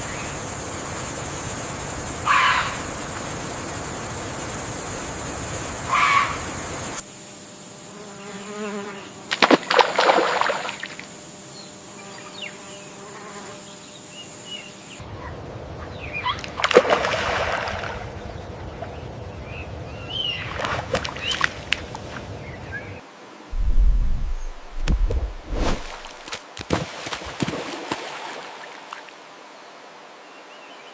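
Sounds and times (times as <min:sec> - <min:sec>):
insect buzzing: 0:00.0 - 0:15.0, 0:23.1 - 0:26.4
high insect hum: 0:00.0 - 0:26.6, 0:27.5 - 0:30.9
water splashing: 0:09.4 - 0:11.0, 0:16.6 - 0:18.1, 0:23.5 - 0:29.2.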